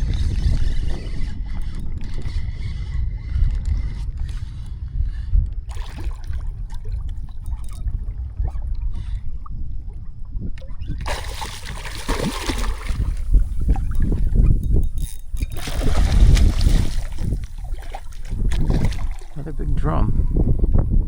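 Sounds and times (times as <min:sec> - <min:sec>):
wind buffeting microphone: 0:00.0 - 0:21.0
water splashing against hull: 0:05.6 - 0:20.9.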